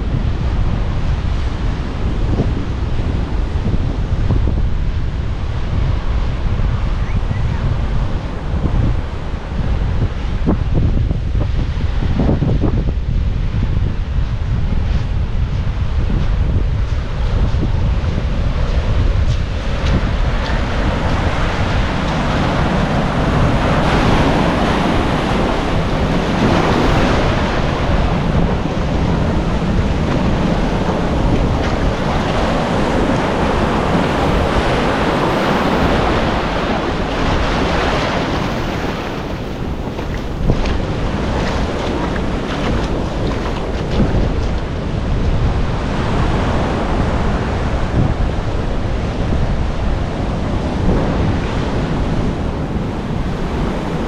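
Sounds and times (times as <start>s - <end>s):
wind buffeting microphone: 0.0s - 54.0s
surf washing against rocks: 13.8s - 54.0s.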